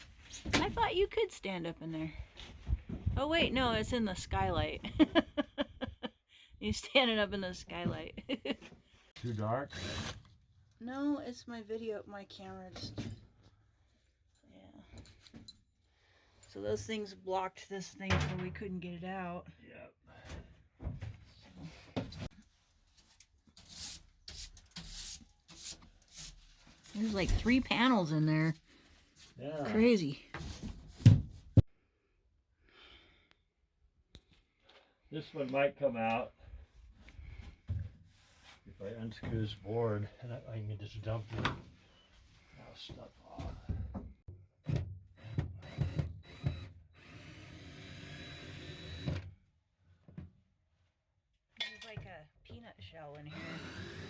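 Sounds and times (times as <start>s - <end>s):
power drill unscrewing screws: 9.7s - 10.3s.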